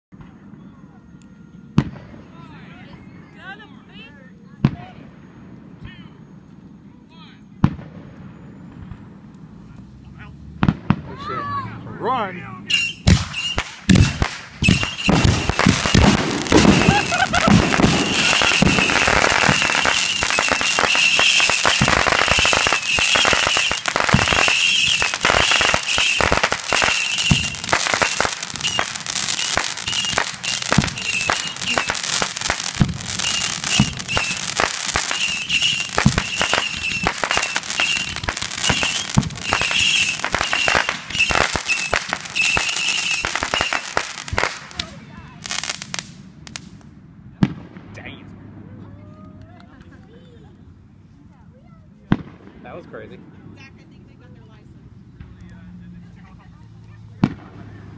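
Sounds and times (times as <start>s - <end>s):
fireworks whistling: 12.6s - 46.8s
fireworks crackling and popping: 12.7s - 48.1s.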